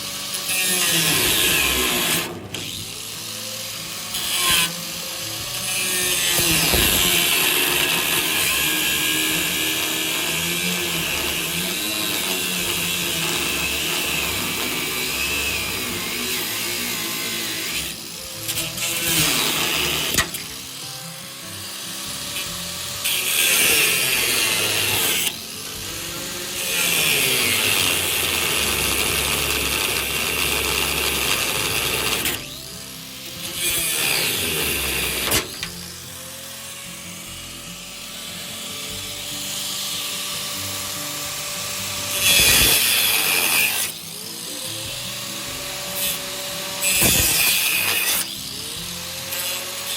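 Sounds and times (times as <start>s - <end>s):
angle grinder cutting nut: 0.0s - 49.9s.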